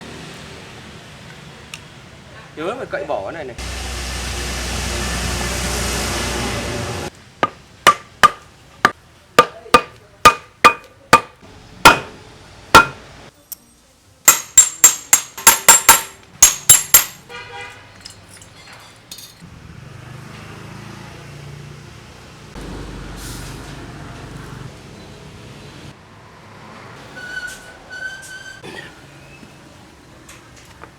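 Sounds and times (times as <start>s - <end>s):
hammer striking metal: 7.4s - 8.5s, 9.4s - 13.0s, 14.3s - 17.3s.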